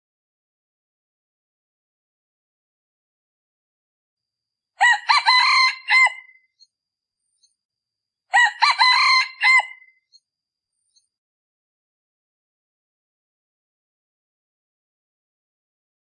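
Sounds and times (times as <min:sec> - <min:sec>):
rooster crowing: 0:04.8 - 0:06.4, 0:08.3 - 0:09.9.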